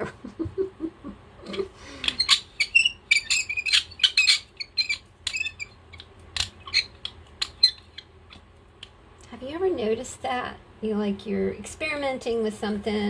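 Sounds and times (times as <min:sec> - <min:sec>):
squeaks and clicks of sticky paint: 0:02.0 - 0:08.9.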